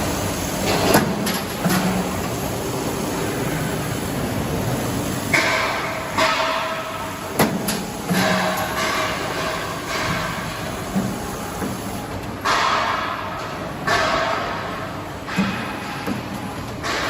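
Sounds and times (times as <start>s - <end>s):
sharp metallic knocks: 5.3s - 11.2s, 12.4s - 17.0s.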